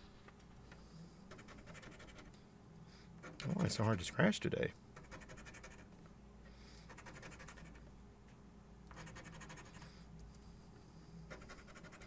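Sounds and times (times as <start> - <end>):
scratching lottery ticket: 1.3 - 2.3, 5.0 - 5.9, 6.9 - 7.8, 8.9 - 9.9, 11.3 - 12.0.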